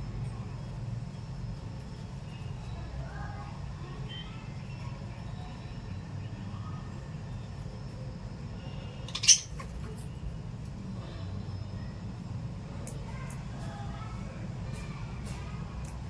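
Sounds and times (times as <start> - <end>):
faint chirping: 0.5 - 10.1
parrot squawk: 9.1 - 9.6.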